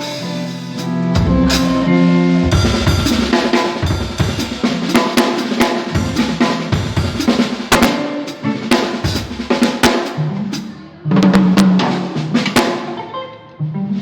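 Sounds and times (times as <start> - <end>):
cymbal strikes: 0.0 - 8.0
snare drum: 0.7 - 8.0, 8.7 - 13.0
held low notes: 0.8 - 5.0
kick drum: 1.2 - 1.5, 2.5 - 3.2.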